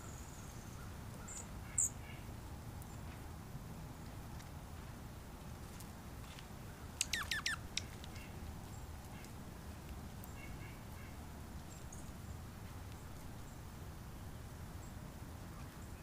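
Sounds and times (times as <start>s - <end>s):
small bird calling: 0.0s - 2.2s, 7.0s - 8.4s.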